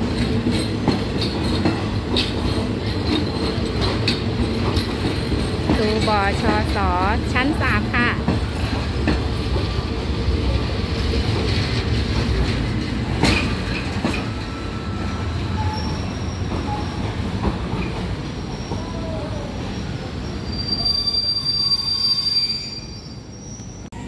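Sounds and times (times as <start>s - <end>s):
train wheels rumbling and clattering: 0.0s - 24.0s
high wheel squeal: 14.2s - 17.2s, 18.4s - 24.0s.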